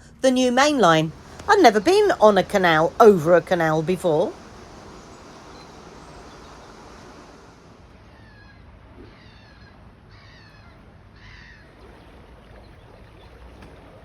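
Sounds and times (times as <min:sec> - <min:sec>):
faint low hum: 0:00.0 - 0:14.0
bird harsh calls: 0:03.9 - 0:12.2.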